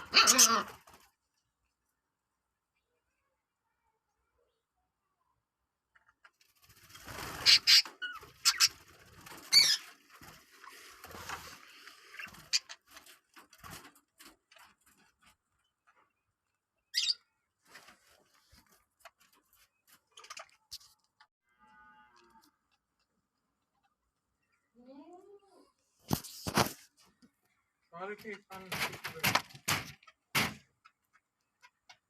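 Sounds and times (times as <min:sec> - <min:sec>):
faint clicks and scratching: 0:05.8 - 0:07.3, 0:07.9 - 0:16.8, 0:17.6 - 0:21.3, 0:22.0 - 0:24.7, 0:26.1 - 0:32.0
lovebirds chirping: 0:07.1 - 0:13.0, 0:15.5 - 0:17.6.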